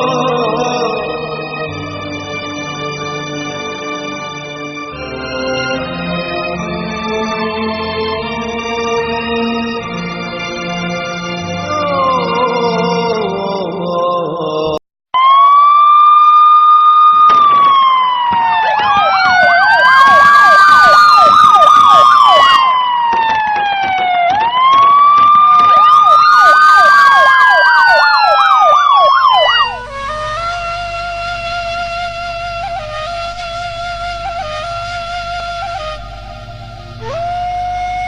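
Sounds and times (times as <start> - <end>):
music: 0.0 - 14.4, 29.3 - 38.0
siren wailing: 15.2 - 38.0
siren yelping: 15.2 - 38.0.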